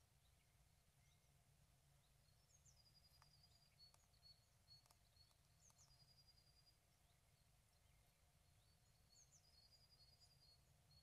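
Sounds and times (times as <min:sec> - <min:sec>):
soft clicks: 0:03.0 - 0:06.5.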